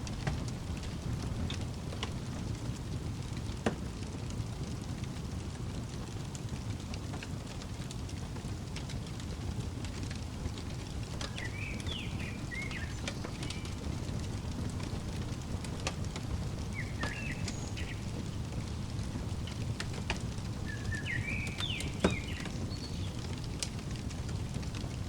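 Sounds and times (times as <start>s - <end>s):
wood fire crackling and popping: 0.0s - 25.0s
bird chirping: 11.2s - 23.4s.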